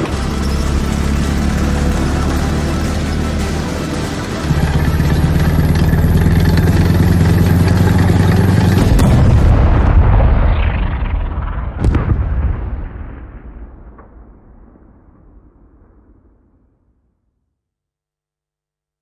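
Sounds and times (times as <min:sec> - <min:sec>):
heavy engine-like drone: 0:00.0 - 0:11.9
sudden hit with rumble: 0:08.4 - 0:16.8
sharp bang: 0:08.5 - 0:16.7.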